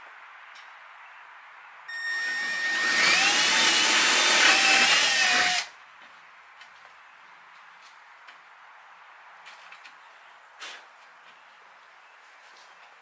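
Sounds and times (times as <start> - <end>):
electric drill whining: 1.9 - 5.7.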